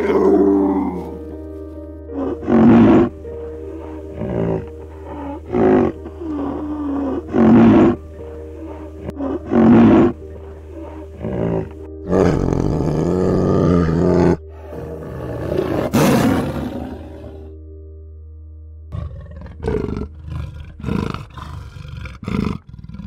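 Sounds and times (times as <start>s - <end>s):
background music: 0.0s - 22.9s
large animal calling loudly: 3.8s - 17.5s.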